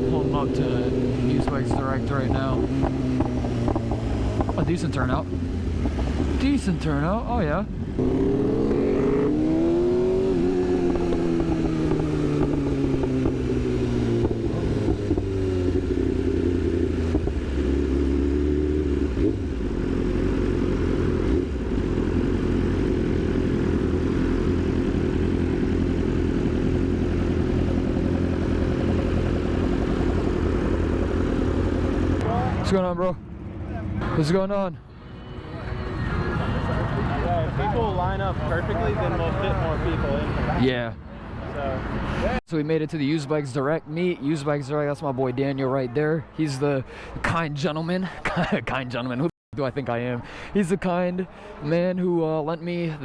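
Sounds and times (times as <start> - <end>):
motorcycle engine slowing and idling: 0.0 - 34.1.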